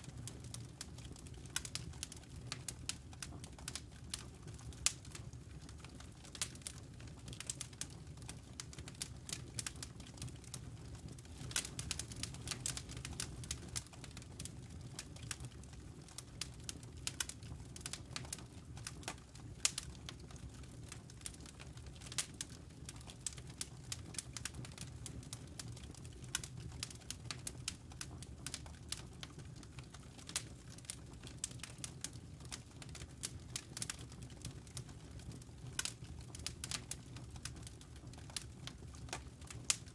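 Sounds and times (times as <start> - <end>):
campfire crackling and popping: 0.0 - 39.9
low rumble of burning: 0.0 - 39.9.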